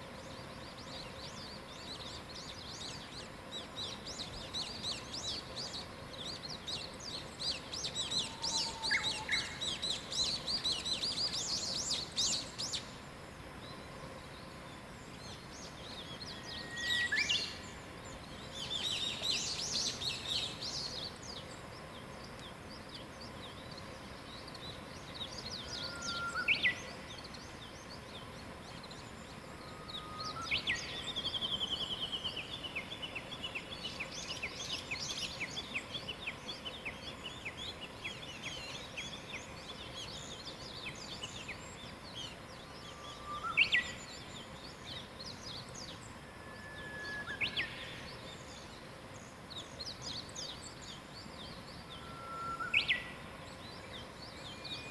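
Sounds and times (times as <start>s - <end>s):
steady light hiss: 0.0s - 54.9s
birds chirping and trilling: 1.0s - 12.9s
bird whistling song: 3.8s - 12.8s, 16.0s - 17.8s, 25.2s - 27.3s, 29.6s - 33.0s, 42.8s - 44.5s, 45.8s - 48.1s, 50.0s - 53.3s, 53.9s - 54.9s.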